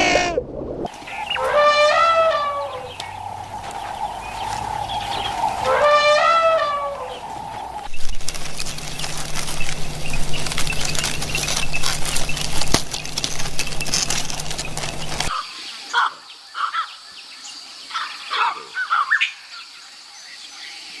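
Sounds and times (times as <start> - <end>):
steady low hum: 0.0 - 15.3.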